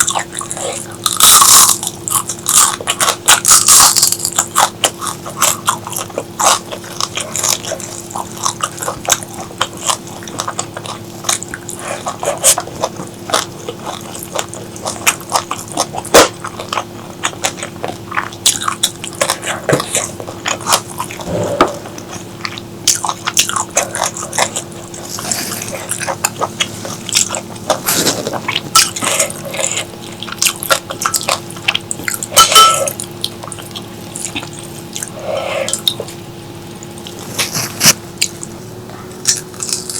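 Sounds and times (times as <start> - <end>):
faint steady hum: 0.0 - 39.9
person chewing crunchy food: 0.0 - 39.9
wet mouth clicks: 16.1 - 36.2.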